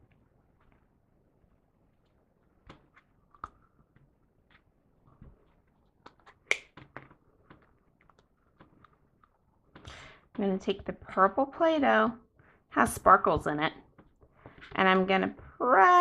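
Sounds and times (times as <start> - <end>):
plastic molds clicking and tapping: 6.1 - 9.0.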